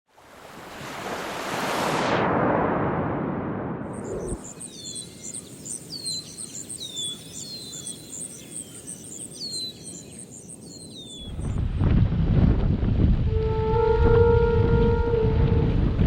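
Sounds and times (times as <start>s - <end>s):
surf noise: 0.1s - 7.3s
falling whistled bird call: 4.0s - 8.6s
birds chirping: 4.0s - 11.6s.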